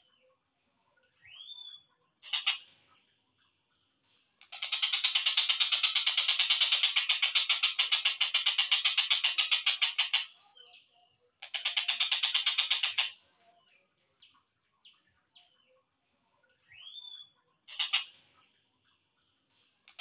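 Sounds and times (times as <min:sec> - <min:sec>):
bird chirps: 0:01.0 - 0:02.7, 0:16.5 - 0:18.2
bird rattling call: 0:02.2 - 0:02.7, 0:04.4 - 0:10.3, 0:11.4 - 0:13.2, 0:17.7 - 0:18.1.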